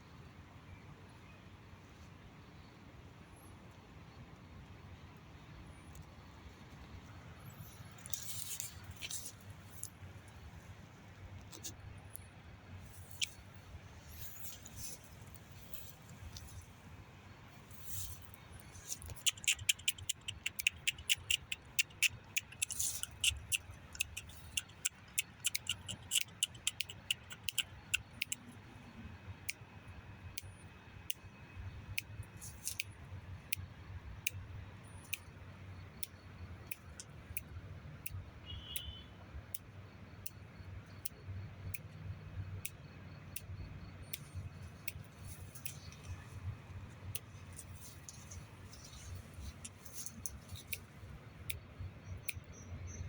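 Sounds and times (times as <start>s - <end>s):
low steady background rumble: 0.0s - 53.0s
sharp clicks and cracks: 18.9s - 28.5s
faint high bird chirps: 34.8s - 53.0s.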